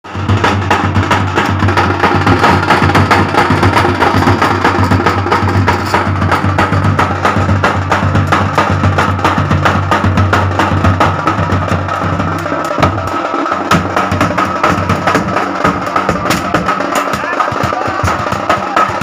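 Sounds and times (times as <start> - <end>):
percussion-heavy music: 0.0 - 19.0.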